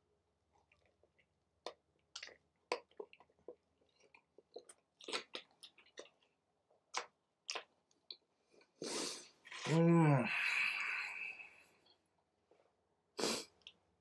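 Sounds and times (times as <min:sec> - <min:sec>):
person chewing sandwich: 0:00.5 - 0:09.7.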